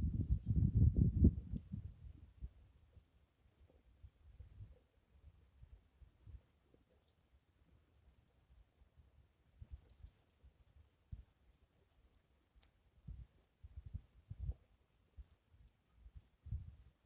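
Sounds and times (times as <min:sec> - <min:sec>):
wind buffeting microphone: 0:00.0 - 0:02.6, 0:13.0 - 0:14.6, 0:16.4 - 0:16.9.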